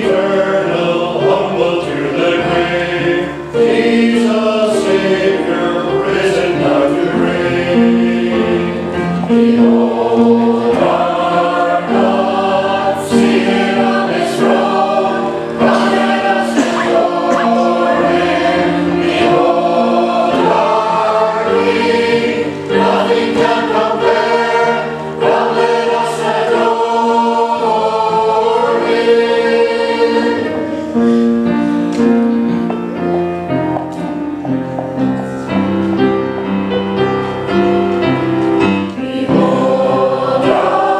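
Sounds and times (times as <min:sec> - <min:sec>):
choir singing: 0:00.0 - 0:40.9.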